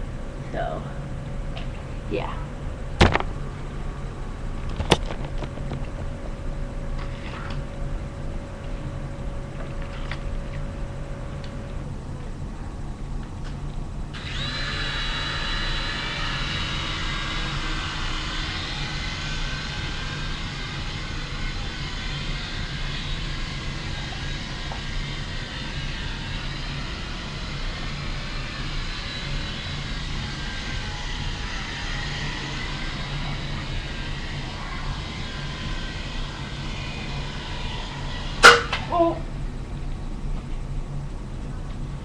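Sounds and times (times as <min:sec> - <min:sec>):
toy helicopter motor whine: 0:14.2 - 0:39.1.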